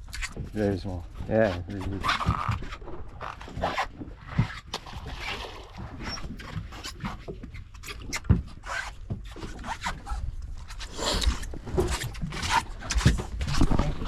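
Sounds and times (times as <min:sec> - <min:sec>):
boat engine low rumble: 0:00.0 - 0:14.0.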